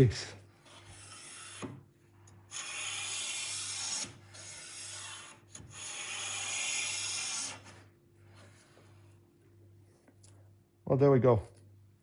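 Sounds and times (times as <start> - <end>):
hand plane shaving wood: 2.5 - 7.7.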